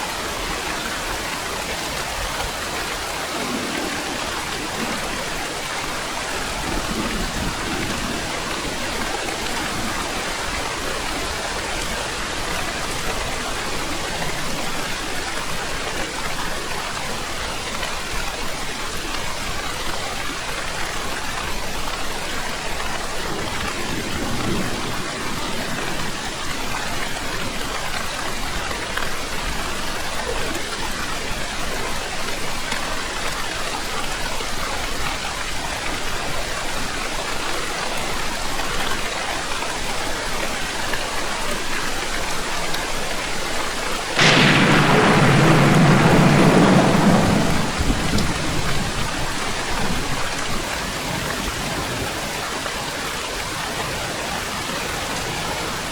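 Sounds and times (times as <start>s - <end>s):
heavy rain falling: 0.0s - 55.9s
thunderclap rumbling: 44.2s - 50.7s.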